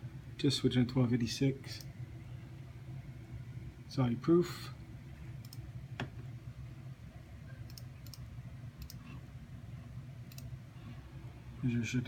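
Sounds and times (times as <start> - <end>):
steady low hum: 0.0 - 12.0
computer mouse clicking: 5.4 - 6.1, 7.6 - 9.2, 10.3 - 10.5.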